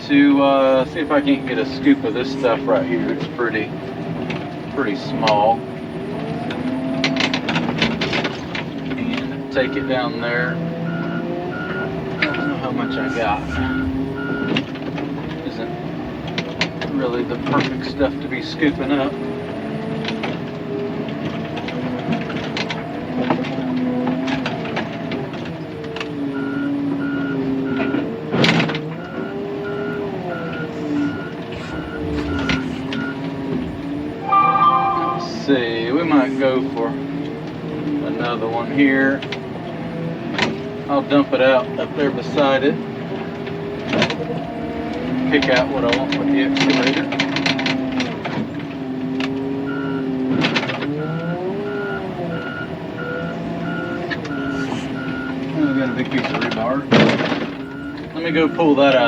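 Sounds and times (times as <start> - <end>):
diesel engine: 10.2 - 15.0, 15.9 - 59.0
reversing alarm beeps: 10.9 - 14.5, 29.0 - 35.5, 51.7 - 56.2
wheel loader engine revving: 31.4 - 34.3.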